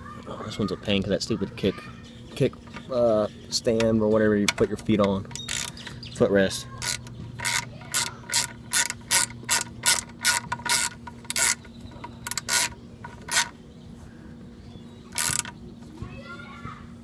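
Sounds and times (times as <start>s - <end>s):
ratchet tool clicking: 5.3s - 5.8s, 6.8s - 13.5s, 15.1s - 15.5s.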